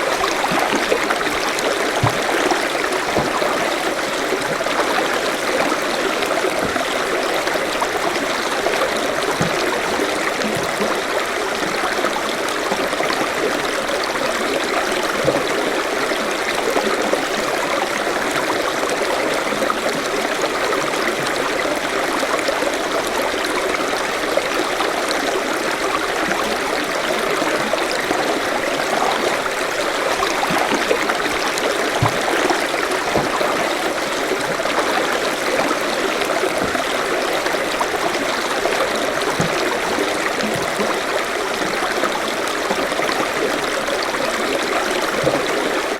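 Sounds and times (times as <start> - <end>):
stream gurgling over stones: 0.0 - 45.9.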